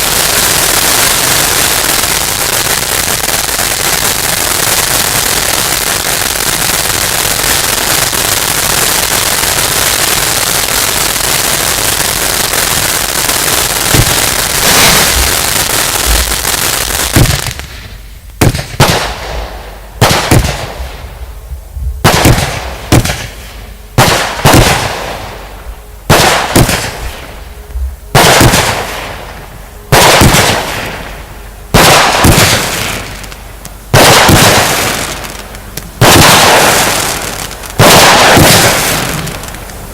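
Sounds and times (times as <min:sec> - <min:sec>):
loud firework bangs: 0:00.0 - 0:21.3, 0:21.9 - 0:27.5, 0:28.1 - 0:39.7
fireworks crackling: 0:00.0 - 0:39.9.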